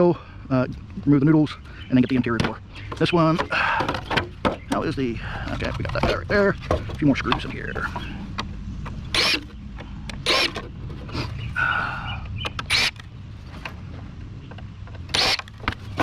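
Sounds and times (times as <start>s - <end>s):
cordless drill whirring: 9.1s - 9.4s, 10.2s - 10.6s, 12.7s - 13.0s, 15.1s - 15.5s
screw squealing: 9.1s - 9.5s, 10.2s - 11.4s, 12.5s - 13.0s, 15.1s - 15.5s.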